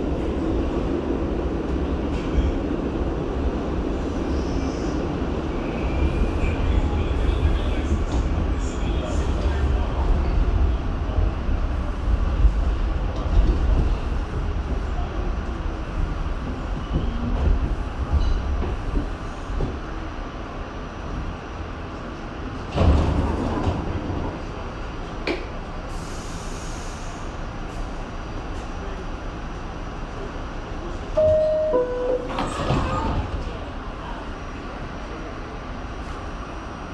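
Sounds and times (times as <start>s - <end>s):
subway train rumbling: 0.0s - 36.9s
train clatter: 12.2s - 20.0s, 22.6s - 25.6s.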